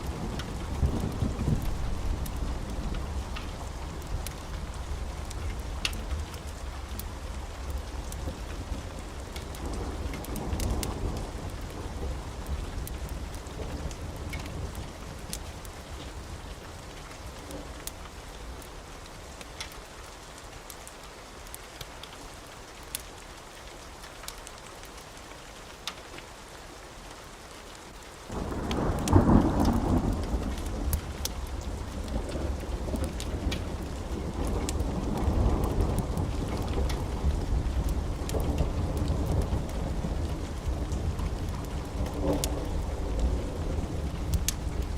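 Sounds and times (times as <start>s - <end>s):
rolling thunder: 0.0s - 6.3s, 28.3s - 44.9s
steady rain: 0.0s - 44.9s
loud thunderclap: 28.3s - 44.9s.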